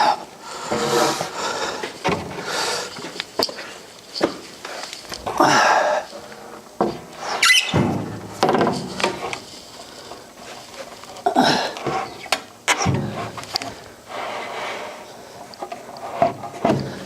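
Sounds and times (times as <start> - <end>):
wood scraping and knocking on wood: 6.8 - 9.7, 11.8 - 17.0
brief wood squeaks: 7.2 - 7.9.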